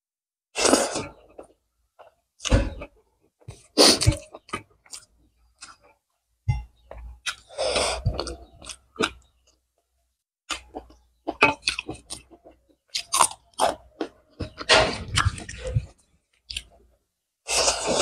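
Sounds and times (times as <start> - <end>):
person chewing food: 0.5 - 6.0, 6.7 - 9.6, 10.5 - 18.0.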